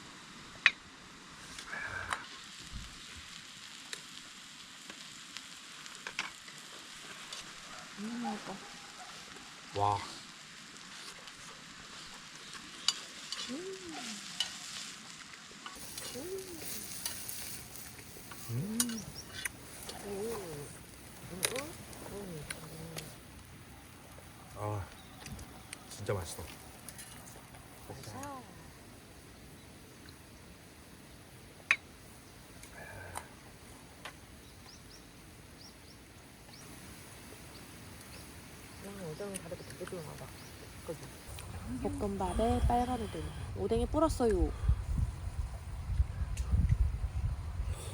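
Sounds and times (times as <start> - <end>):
food sizzling in a frying pan: 1.2 - 44.4
small birds chirping: 15.8 - 28.4, 34.3 - 43.1.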